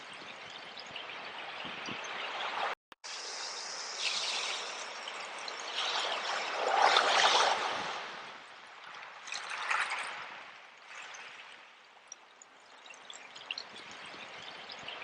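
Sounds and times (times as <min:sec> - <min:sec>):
sea waves washing in: 0:01.2 - 0:11.7.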